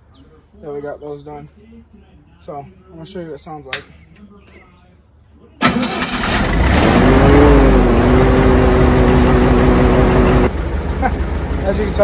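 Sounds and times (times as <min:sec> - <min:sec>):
welding machine engine starting: 0:05.6 - 0:06.9.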